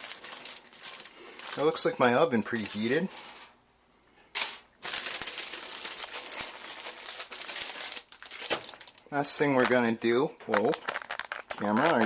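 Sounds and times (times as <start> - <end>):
foil rustle: 0.0 - 3.5, 4.8 - 9.4, 10.5 - 12.0
aluminium foil crinkling: 0.0 - 3.6, 4.3 - 12.0.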